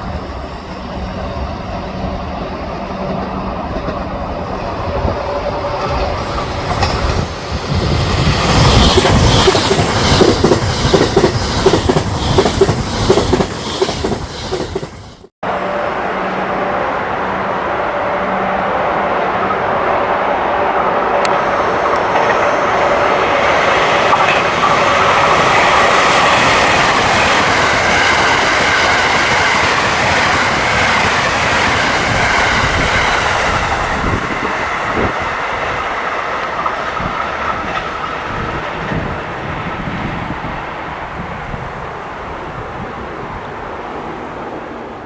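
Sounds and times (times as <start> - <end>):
train passing at speed: 0.0 - 45.0
wheels clacking over rail joints: 21.2 - 39.9.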